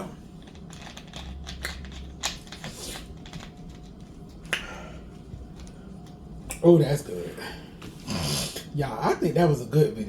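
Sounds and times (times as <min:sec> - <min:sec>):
mouth clicks and smacks: 0:00.8 - 0:04.8.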